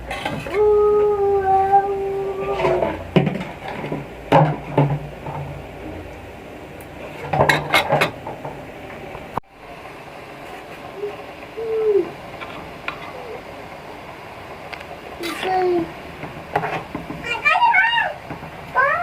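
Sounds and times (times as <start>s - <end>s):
utensils clinking against pots: 7.0s - 8.4s.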